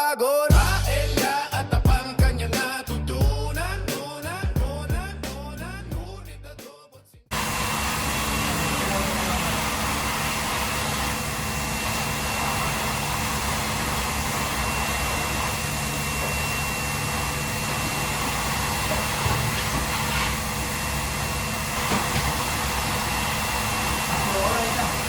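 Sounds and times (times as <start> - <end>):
fan or motor rushing noise: 7.3 - 25.0.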